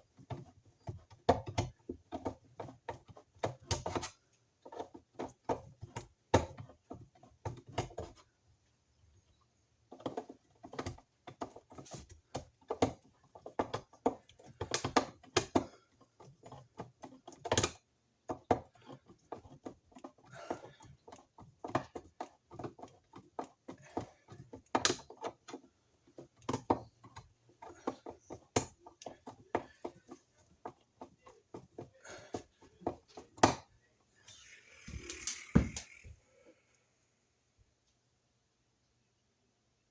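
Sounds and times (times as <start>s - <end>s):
tools knocking and clicking: 9.9s - 36.1s.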